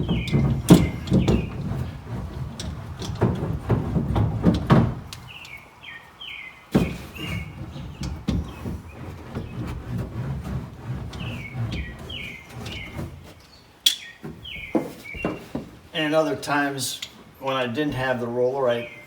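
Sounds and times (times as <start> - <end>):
sound-deadening mat being rubbed: 0.0 - 5.2, 6.7 - 15.9.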